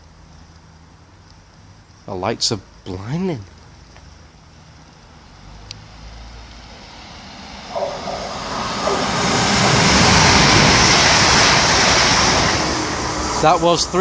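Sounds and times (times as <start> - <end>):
electric train passing: 4.2 - 14.0.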